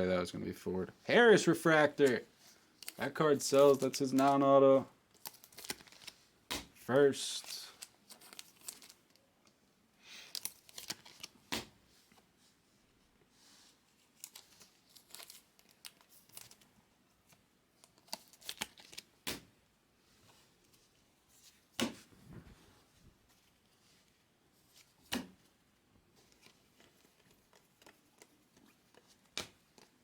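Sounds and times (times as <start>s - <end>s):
foil wrappers tearing and crinkling: 5.1s - 6.2s, 7.2s - 9.1s, 10.3s - 11.4s, 14.2s - 16.6s, 18.0s - 19.1s.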